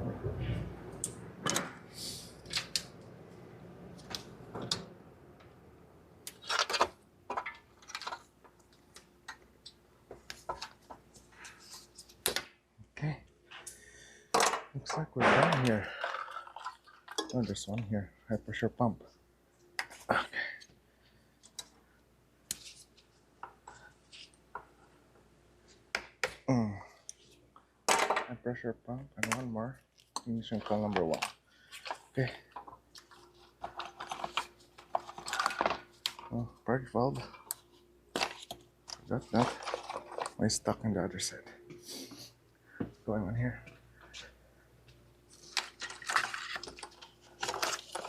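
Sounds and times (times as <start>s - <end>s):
plastic connectors clicking and clattering: 6.3s - 11.0s, 30.0s - 36.4s, 45.4s - 48.0s.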